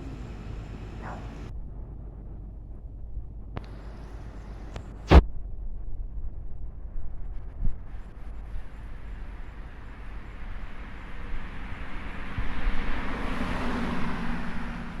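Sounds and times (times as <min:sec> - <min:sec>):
passing vehicle engine hum: 0:00.0 - 0:01.5, 0:08.9 - 0:15.0
wind rumble on microphone: 0:00.0 - 0:15.0.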